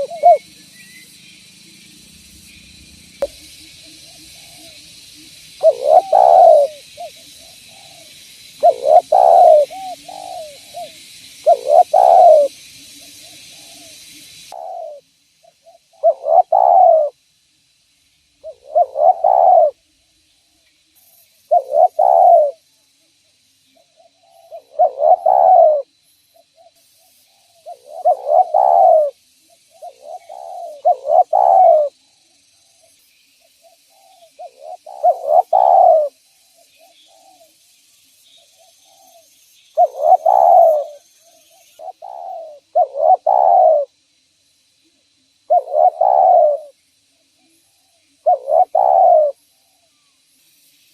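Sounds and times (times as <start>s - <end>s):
dove cooing: 0.0s - 0.6s, 5.5s - 15.0s, 15.6s - 17.2s, 18.4s - 19.8s, 21.5s - 22.6s, 24.3s - 25.9s, 27.6s - 29.2s, 29.8s - 31.9s, 33.9s - 36.2s, 39.8s - 41.0s, 41.8s - 43.9s, 45.5s - 46.7s, 48.2s - 49.4s
steady hiss: 0.0s - 50.9s.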